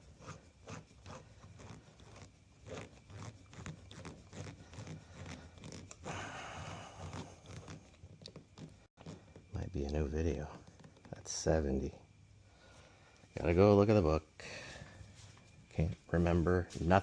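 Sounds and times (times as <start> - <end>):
short rustling noise: 14.7 - 17.0.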